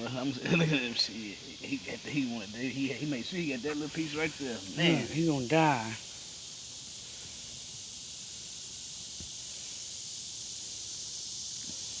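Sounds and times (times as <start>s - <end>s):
steady high-pitched hiss: 0.0s - 12.0s.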